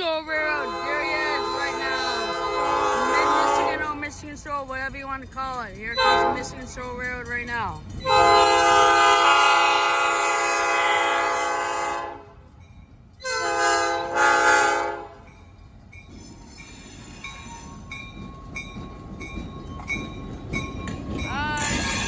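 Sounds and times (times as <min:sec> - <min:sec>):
train rumble: 0:00.0 - 0:22.0
locomotive air horn blasts: 0:00.4 - 0:04.0, 0:06.0 - 0:06.6, 0:08.1 - 0:12.4, 0:13.2 - 0:15.2.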